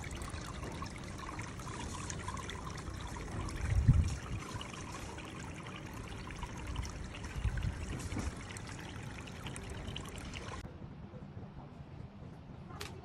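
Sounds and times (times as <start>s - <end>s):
water pouring and trickling: 0.0s - 10.6s.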